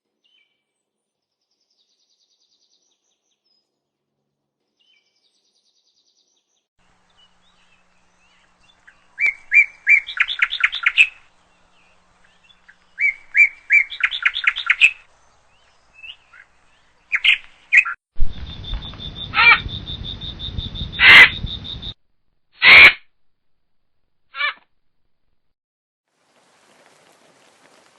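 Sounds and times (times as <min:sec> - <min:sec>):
bird chirping and calling: 0:07.1 - 0:22.0, 0:22.6 - 0:23.0.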